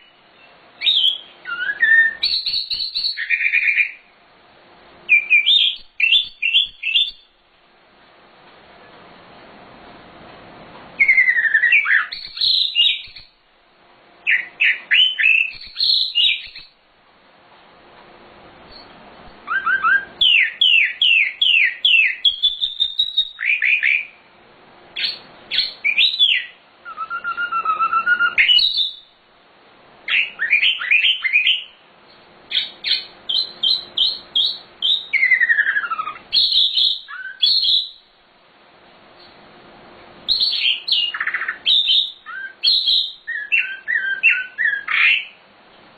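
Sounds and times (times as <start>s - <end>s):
songbird whistling and trilling: 0.0s - 4.1s, 5.1s - 7.4s, 11.0s - 13.4s, 14.2s - 16.8s, 18.7s - 24.2s, 25.0s - 29.2s, 30.1s - 31.8s, 32.5s - 38.1s, 40.3s - 45.4s.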